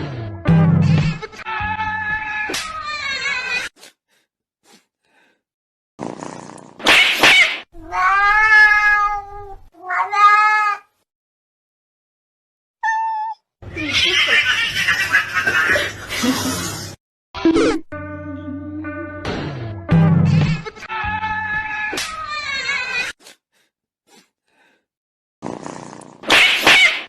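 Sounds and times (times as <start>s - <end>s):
cat yowling and meowing: 1.4s - 3.7s, 7.8s - 11.0s, 12.8s - 13.4s, 20.9s - 23.1s.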